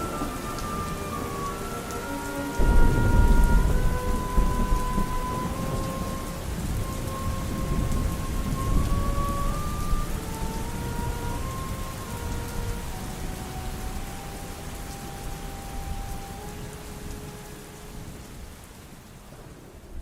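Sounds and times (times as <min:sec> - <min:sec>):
faint music with held notes: 0:00.0 - 0:18.6
steady rain: 0:00.0 - 0:20.0
thunder rumbling: 0:00.0 - 0:20.0.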